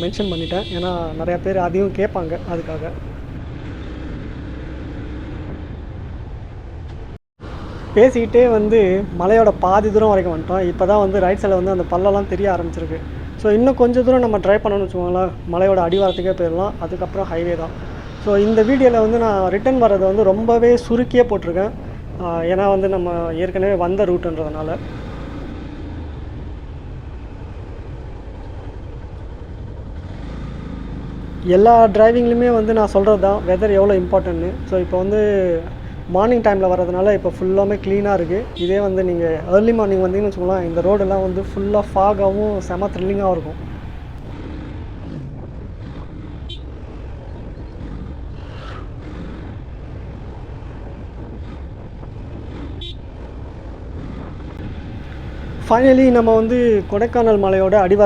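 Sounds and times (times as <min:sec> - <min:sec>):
motorcycle engine rumble: 0:00.0 - 0:58.0
wind noise: 0:07.4 - 0:25.6, 0:31.2 - 0:58.0.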